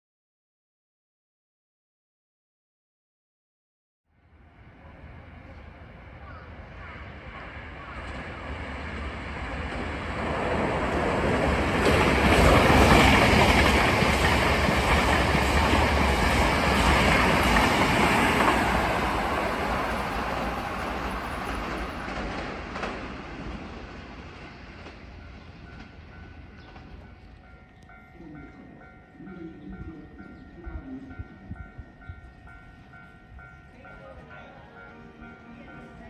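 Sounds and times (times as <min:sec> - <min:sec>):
train wheels rushing on rails: 0:06.8 - 0:27.2.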